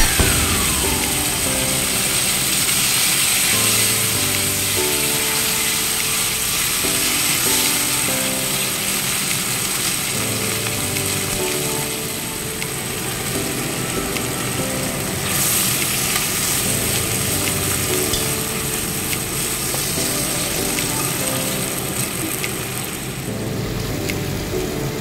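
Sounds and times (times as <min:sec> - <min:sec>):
vegetables sizzling in hot oil: 0:00.0 - 0:23.4.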